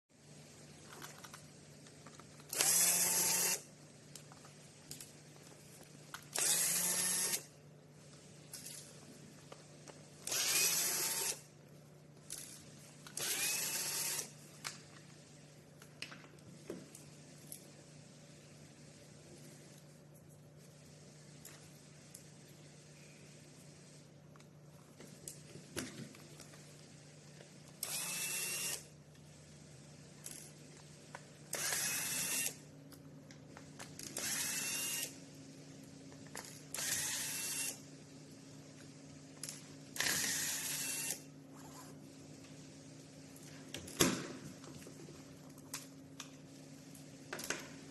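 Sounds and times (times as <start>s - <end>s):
electric screwdriver whining: 2.5s - 3.6s, 6.4s - 7.4s, 10.2s - 11.4s, 13.2s - 14.3s, 27.8s - 28.8s, 31.6s - 32.6s, 34.2s - 35.2s, 36.8s - 37.8s, 40.0s - 41.2s.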